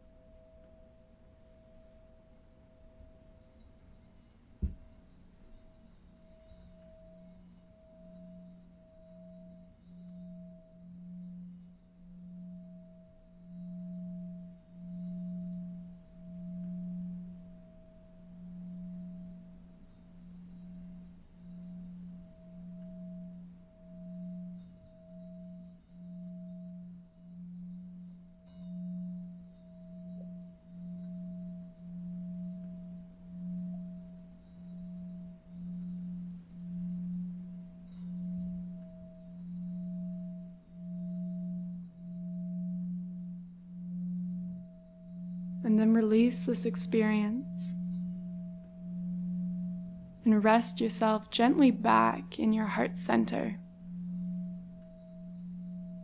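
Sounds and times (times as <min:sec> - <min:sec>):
faint higher held tone: 0:21.9 - 0:56.0
low humming drone: 0:28.7 - 0:56.0.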